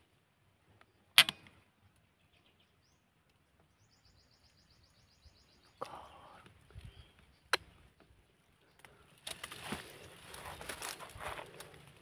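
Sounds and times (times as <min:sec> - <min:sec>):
sharp loud click: 0:01.2 - 0:01.5.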